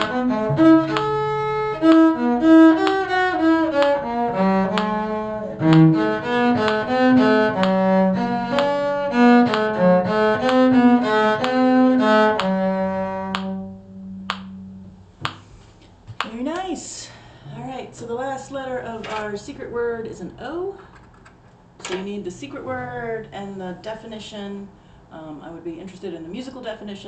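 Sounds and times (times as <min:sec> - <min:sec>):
string ensemble playing: 0:00.0 - 0:15.4, 0:21.9 - 0:23.7.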